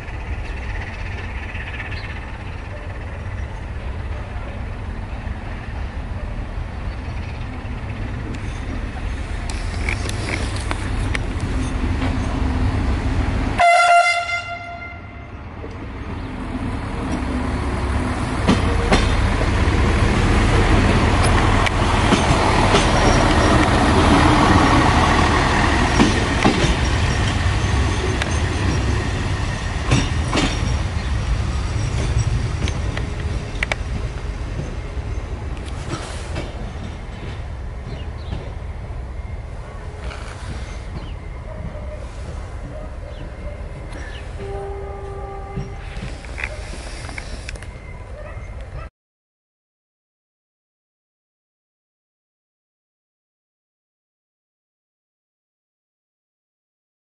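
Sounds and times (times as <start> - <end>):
train rumbling past: 0.0 - 48.9
wheels clicking over rail joints: 7.4 - 12.5, 20.5 - 39.1, 39.8 - 48.8
train horn blast: 13.6 - 15.3, 44.4 - 46.0.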